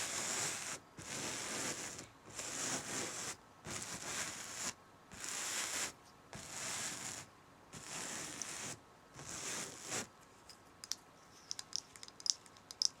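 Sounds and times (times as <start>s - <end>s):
scratching strokes across fabric: 0.0s - 10.1s.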